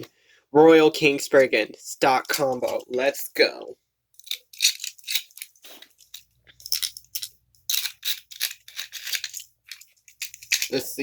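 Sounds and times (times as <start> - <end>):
plastic parts clicking and rattling: 4.1 - 11.0.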